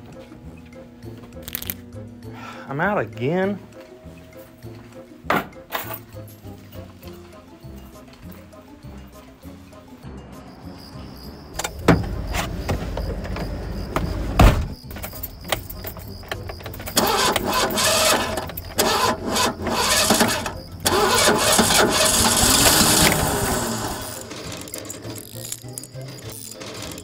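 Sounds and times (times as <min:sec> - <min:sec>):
truck door thumping: 0:11.6 - 0:14.8
engine starter cranking: 0:15.0 - 0:27.0.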